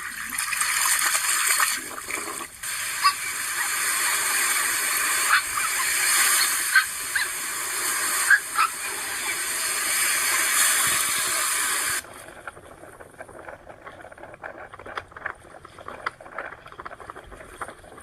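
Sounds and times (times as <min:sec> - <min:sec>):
rushing water hiss: 0:00.8 - 0:12.1.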